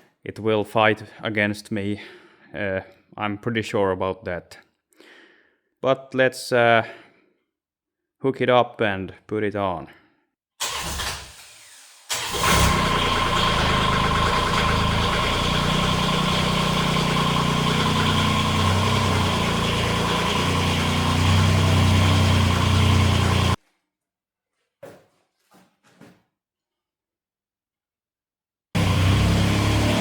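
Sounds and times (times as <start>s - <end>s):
tractor diesel engine running: 12.1s - 23.6s, 28.8s - 30.0s.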